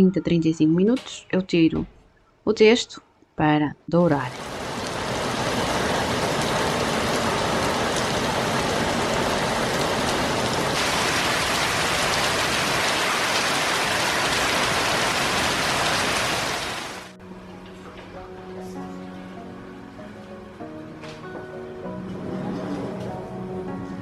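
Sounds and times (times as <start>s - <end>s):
soft music: 0.0s - 1.8s, 17.1s - 24.0s
steady rain falling: 4.3s - 17.2s.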